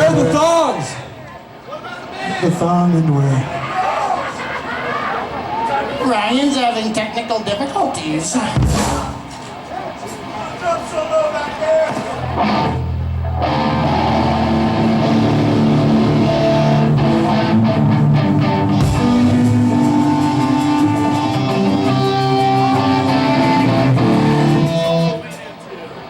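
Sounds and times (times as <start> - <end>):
electric guitar: 12.1 - 25.4
bass guitar: 12.2 - 25.3.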